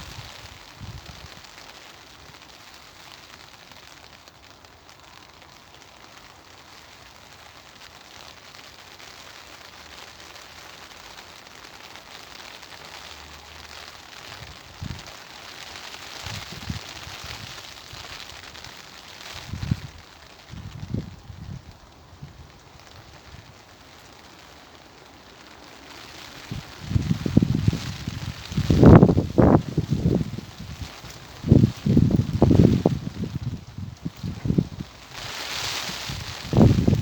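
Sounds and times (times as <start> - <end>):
wind gusts on microphone: 0.0 - 1.5, 14.4 - 15.1, 16.2 - 18.2, 19.3 - 23.6, 26.3 - 37.0
rain pattering on garden: 0.0 - 37.0.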